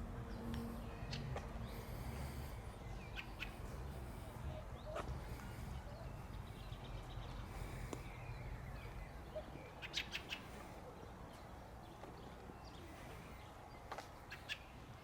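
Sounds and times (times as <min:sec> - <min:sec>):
low outdoor rumble: 0:00.0 - 0:15.0
small bird chirping: 0:04.8 - 0:10.6.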